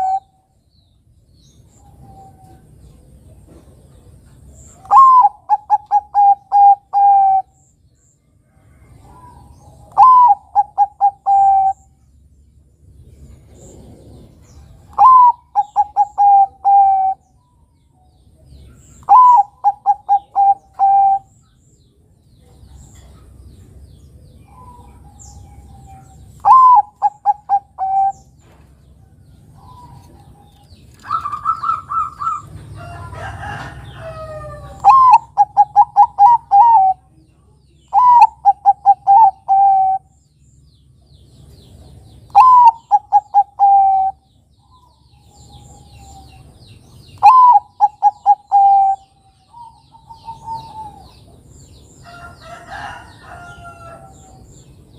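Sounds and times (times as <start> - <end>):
doves cooing: 0.0 - 0.3, 4.8 - 7.6, 8.8 - 11.9, 13.4 - 17.2, 19.1 - 21.4, 24.4 - 28.6, 29.5 - 37.1, 37.9 - 40.1, 42.2 - 44.8, 47.2 - 51.4.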